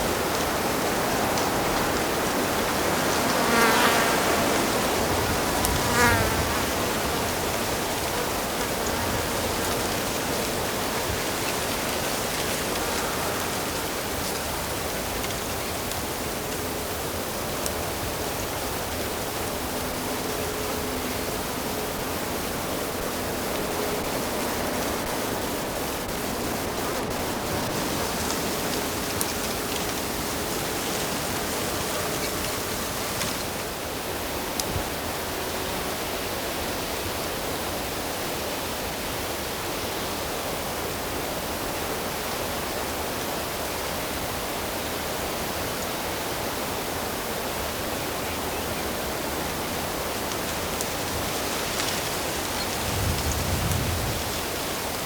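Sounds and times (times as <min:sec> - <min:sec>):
insect buzzing past: 0:01.0 - 0:14.4.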